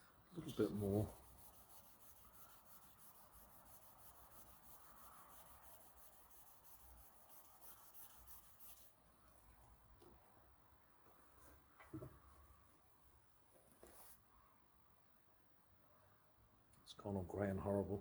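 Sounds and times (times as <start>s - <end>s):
sandpaper rasping by hand: 0.4s - 8.9s.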